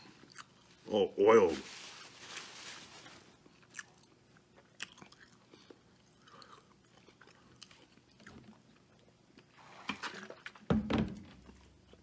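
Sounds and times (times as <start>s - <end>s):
faint chewing: 0.0s - 0.8s, 3.3s - 10.6s.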